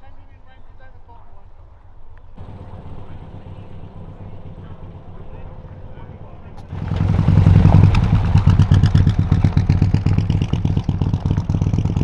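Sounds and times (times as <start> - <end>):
loud car engine running: 2.4 - 12.0.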